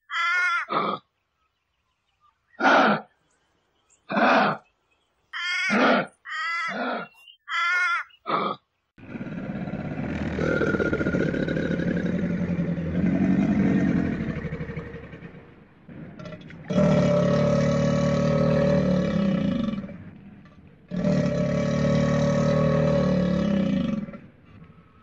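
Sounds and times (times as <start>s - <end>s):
crocodile growling rumble: 9.0s - 24.9s.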